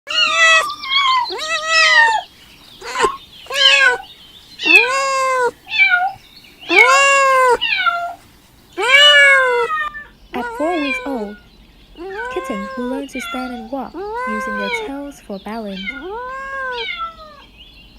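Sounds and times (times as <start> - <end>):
kittens meowing: 0.1 - 8.2, 8.8 - 17.6.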